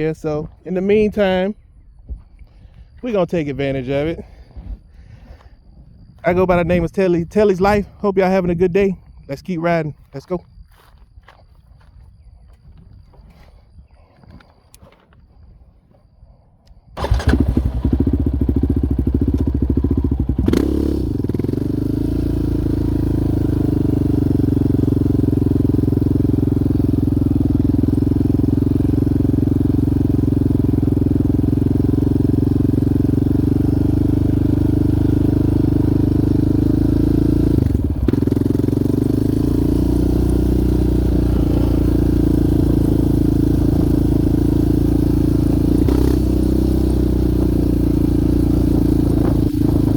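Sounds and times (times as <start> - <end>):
quad engine running: 17.0 - 49.9.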